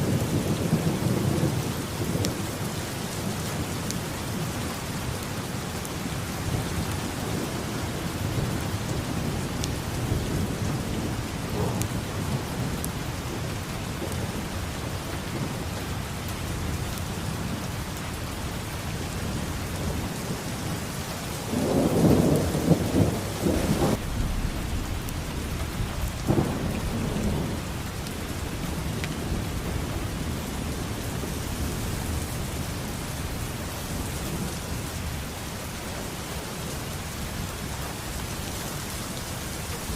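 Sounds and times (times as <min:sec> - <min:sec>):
steady rain: 0:00.0 - 0:39.9
thunder rumbling: 0:06.1 - 0:35.5.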